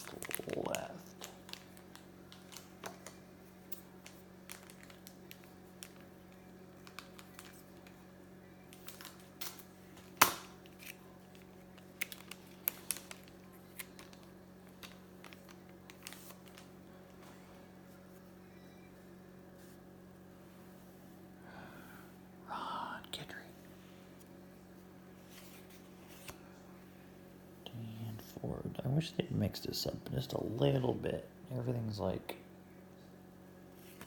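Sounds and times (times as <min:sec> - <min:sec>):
faint steady hum: 0:00.0 - 0:34.0
sharp card snap: 0:10.2 - 0:11.0.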